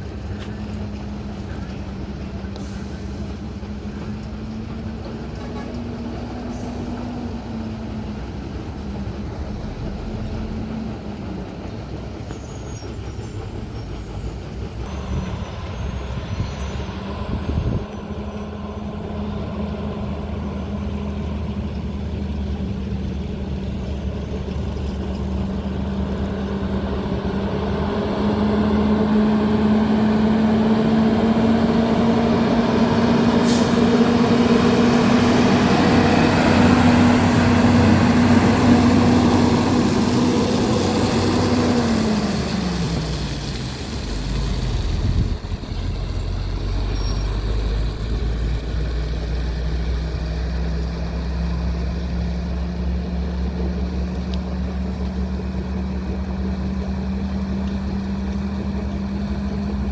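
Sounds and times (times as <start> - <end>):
road noise: 0.0 - 59.9
truck engine running: 13.3 - 59.9.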